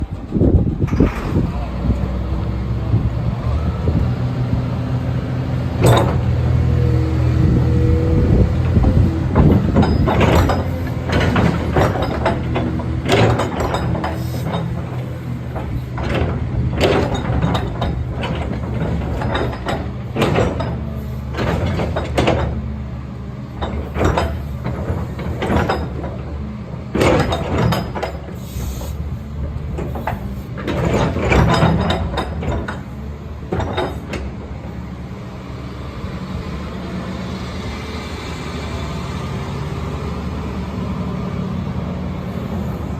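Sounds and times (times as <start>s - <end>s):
excavator diesel engine running: 0.0s - 42.9s
metallic clanks and knocks: 5.8s - 6.4s, 8.6s - 22.7s, 23.5s - 34.8s.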